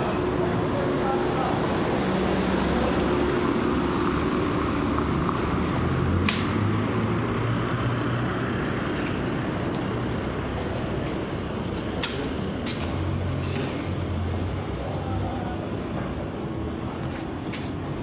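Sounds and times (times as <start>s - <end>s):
steady traffic rush: 0.0s - 18.0s.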